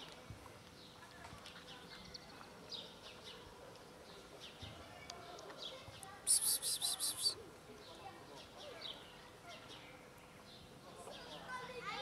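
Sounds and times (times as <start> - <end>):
faint bird chirping: 5.7 - 7.4.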